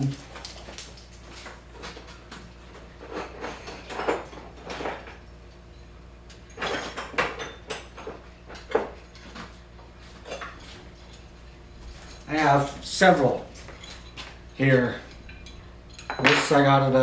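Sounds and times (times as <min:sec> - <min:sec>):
metal files clinking on workbench: 0:06.3 - 0:17.0.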